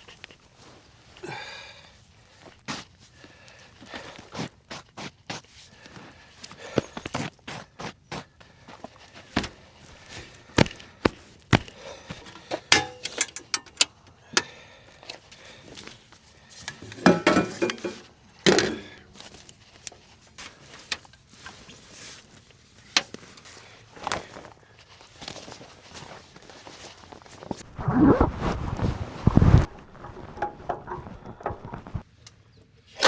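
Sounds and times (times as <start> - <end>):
knocks and clicks of handled objects: 10.6 - 14.0, 16.7 - 19.0.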